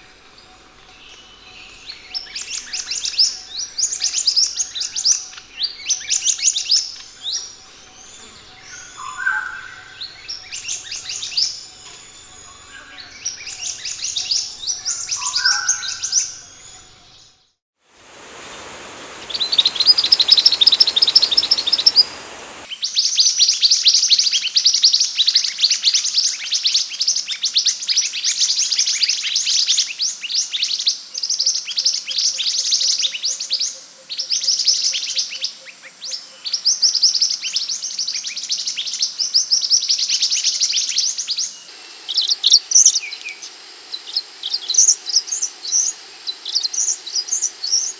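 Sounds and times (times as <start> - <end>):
steady hiss: 17.8 - 22.8, 40.3 - 47.9
bird song rapid high chirping: 18.0 - 22.7.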